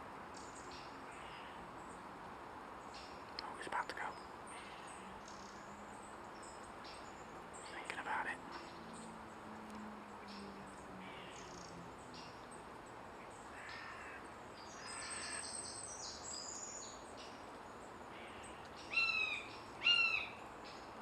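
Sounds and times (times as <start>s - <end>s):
small birds chirping: 0.2s - 21.0s
loud short bird calls: 13.5s - 16.7s, 18.1s - 20.4s.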